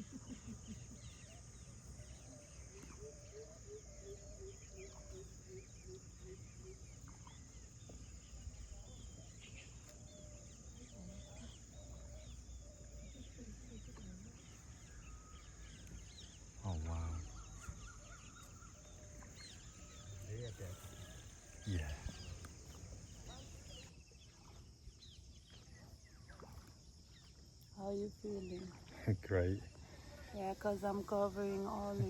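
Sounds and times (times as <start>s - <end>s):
birds chirping and calling: 0.0s - 24.2s
high insect drone: 0.0s - 25.2s.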